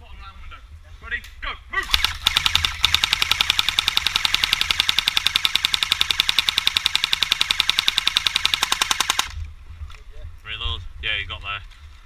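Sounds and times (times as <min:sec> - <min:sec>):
airsoft rifle full-auto burst: 0:01.9 - 0:09.4.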